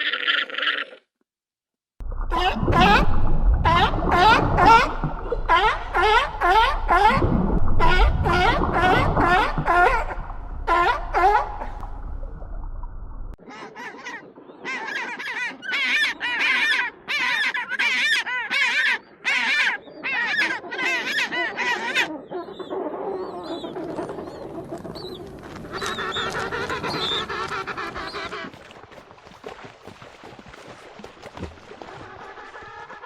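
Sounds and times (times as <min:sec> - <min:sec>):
waterfowl honking: 0:25.7 - 0:28.6.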